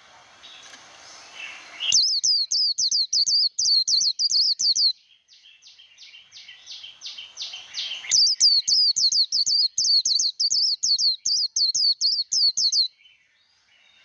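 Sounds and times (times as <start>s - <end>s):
bird singing rapid high notes: 1.4s - 5.0s, 5.6s - 13.0s.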